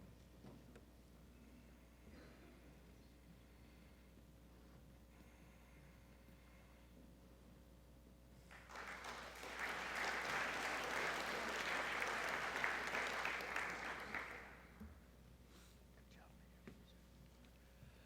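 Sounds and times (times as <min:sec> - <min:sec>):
audience clapping: 0:08.5 - 0:14.8.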